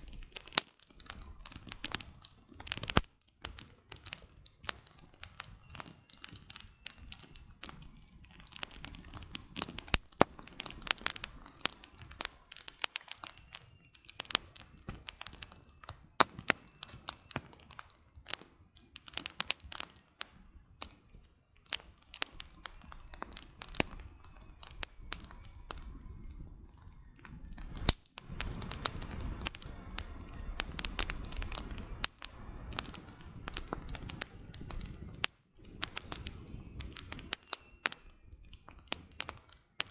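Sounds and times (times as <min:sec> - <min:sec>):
campfire crackling: 0:00.0 - 0:39.9
low steady rushing noise: 0:27.3 - 0:37.2.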